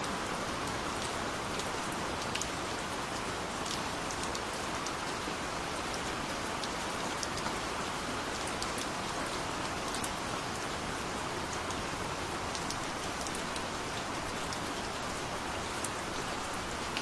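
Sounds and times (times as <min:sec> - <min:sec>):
gentle rain falling: 0:00.0 - 0:17.0.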